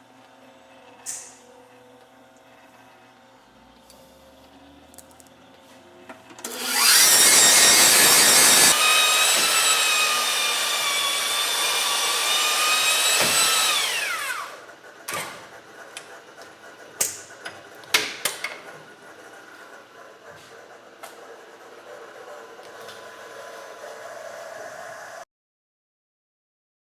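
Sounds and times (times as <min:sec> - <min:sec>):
honing machine motor whine: 0:06.4 - 0:14.6.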